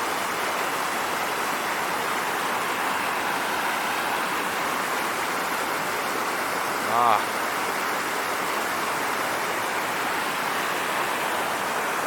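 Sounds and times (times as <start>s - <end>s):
waterfall splashing into pool: 0.0s - 12.0s.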